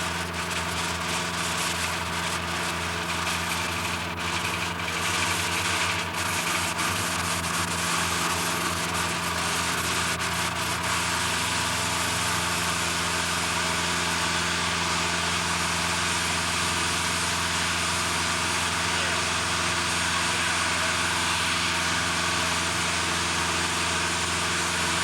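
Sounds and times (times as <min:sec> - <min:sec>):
heavy machinery idling: 0:11.3 - 0:25.0.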